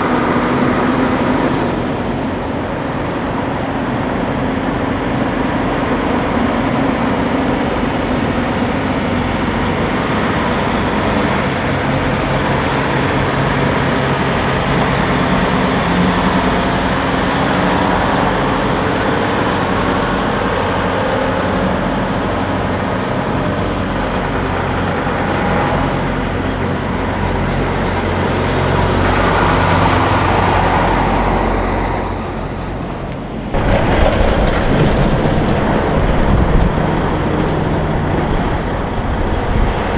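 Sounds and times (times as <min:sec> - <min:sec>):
diesel truck engines passing: 0:00.0 - 0:39.9
tyre and road noise: 0:11.3 - 0:20.4, 0:23.4 - 0:39.9.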